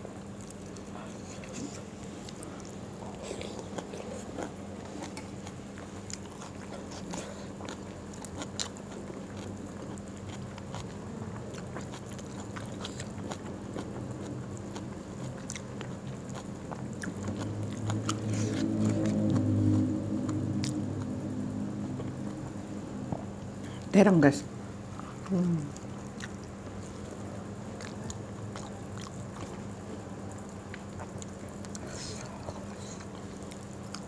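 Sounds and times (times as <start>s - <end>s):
person chewing food: 0.3s - 23.8s, 24.9s - 34.0s
low hum: 16.2s - 25.9s.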